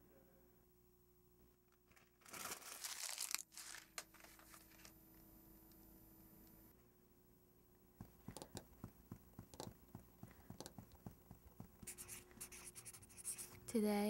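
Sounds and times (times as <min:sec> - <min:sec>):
pen scratching on paper: 0:08.0 - 0:13.6.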